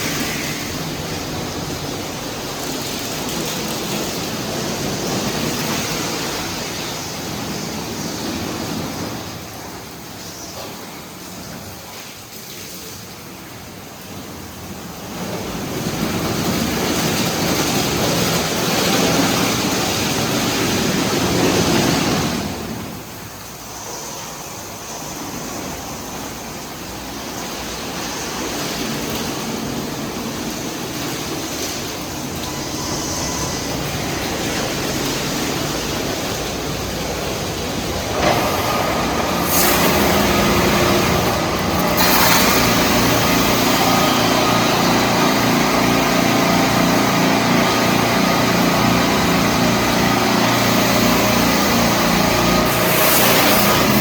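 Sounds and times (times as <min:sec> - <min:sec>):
high-pressure water spray on car: 0:00.0 - 0:09.7, 0:14.8 - 0:54.0
machine hum: 0:15.2 - 0:54.0.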